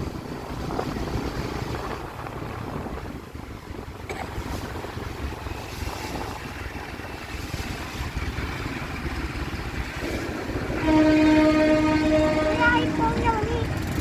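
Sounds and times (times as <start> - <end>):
train rumble: 0.0 - 14.0
wind buffeting microphone: 0.0 - 14.0
train horn: 10.6 - 13.5.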